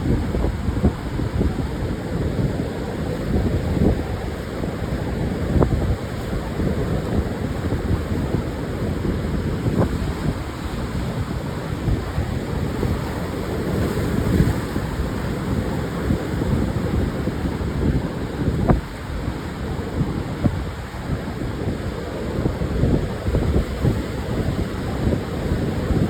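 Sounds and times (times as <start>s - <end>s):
surf washing onto beach: 0.0s - 26.0s
wind buffeting microphone: 0.0s - 26.0s.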